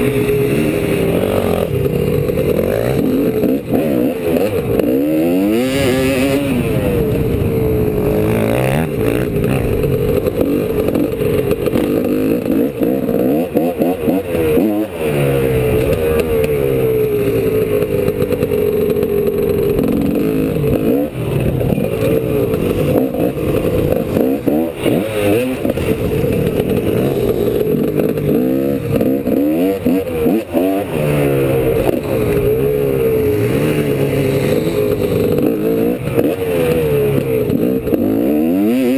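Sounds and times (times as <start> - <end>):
two-stroke engine revving: 0.0 - 38.9.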